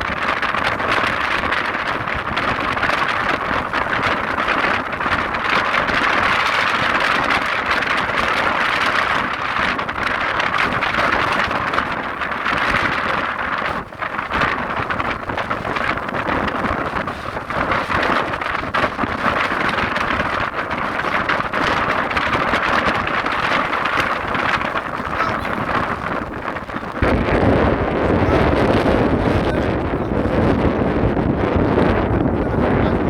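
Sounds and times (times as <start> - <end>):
strong wind on microphone: 0.0 - 33.0.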